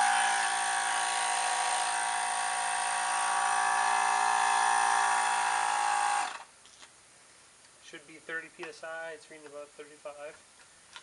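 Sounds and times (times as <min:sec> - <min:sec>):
air compressor motor whine: 0:00.0 - 0:06.5.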